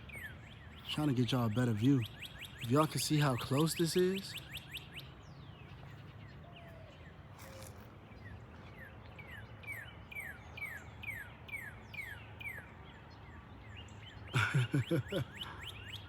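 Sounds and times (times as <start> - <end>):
faint low outdoor rumble: 0.0 - 16.0
songbird whistling: 4.2 - 5.1.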